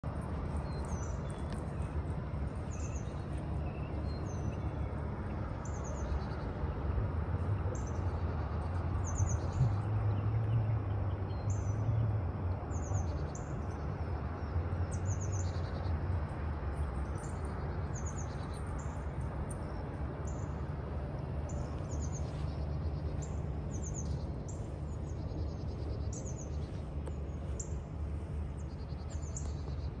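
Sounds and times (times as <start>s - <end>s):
steady low rumble: 0.0s - 30.0s
birds chirping: 21.3s - 30.0s.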